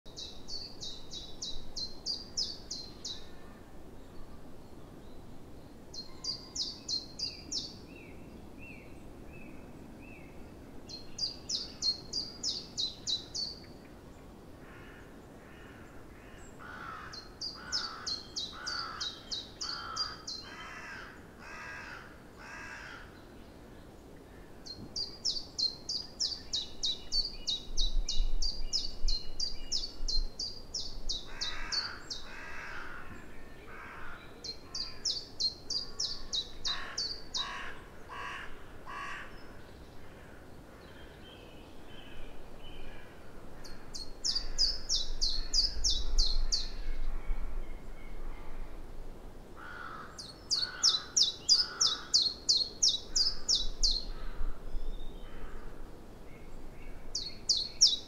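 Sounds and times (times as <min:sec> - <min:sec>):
bird lower calls: 0:49.6 - 0:54.4.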